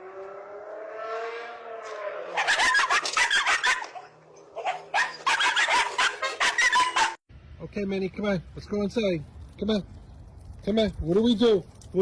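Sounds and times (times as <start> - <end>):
dog barking: 2.4 - 7.2.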